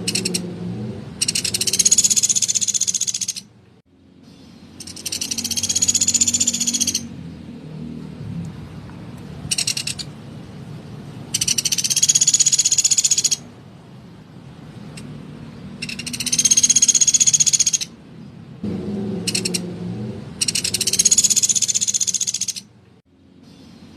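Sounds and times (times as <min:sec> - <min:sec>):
woodpecker rattling calls: 0:00.0 - 0:00.6, 0:01.2 - 0:03.5, 0:04.3 - 0:07.2, 0:09.4 - 0:10.2, 0:11.3 - 0:13.5, 0:15.8 - 0:18.4, 0:19.2 - 0:19.7, 0:20.4 - 0:22.8.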